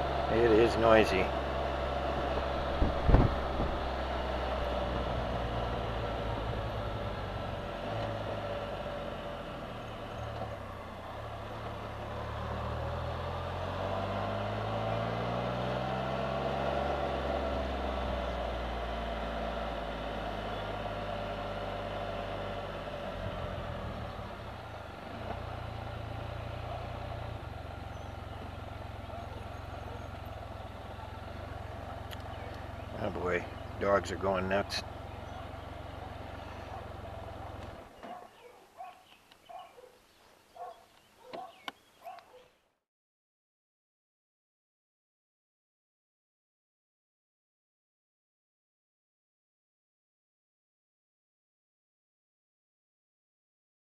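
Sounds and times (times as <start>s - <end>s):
three-wheeled motorcycle engine: 0.0s - 42.8s.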